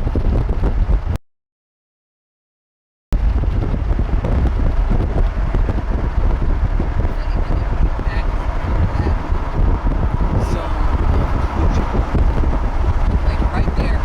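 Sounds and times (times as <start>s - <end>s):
wind buffeting microphone: 0.0s - 1.2s, 3.2s - 14.0s.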